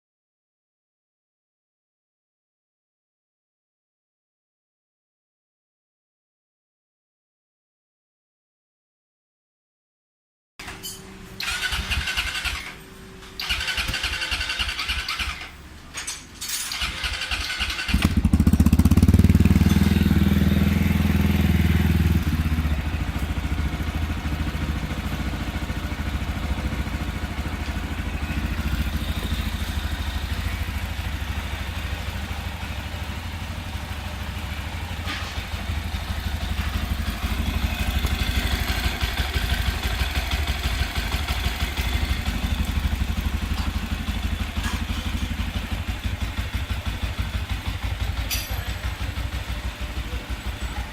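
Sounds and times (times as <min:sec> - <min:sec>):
motorcycle engine starting and idling: 0:10.6 - 0:50.9.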